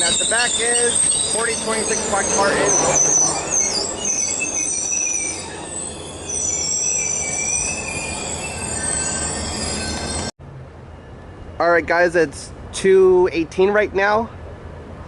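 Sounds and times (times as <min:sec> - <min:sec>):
train wheels squealing: 0:00.0 - 0:10.3
low rumble of train cars: 0:00.0 - 0:15.0.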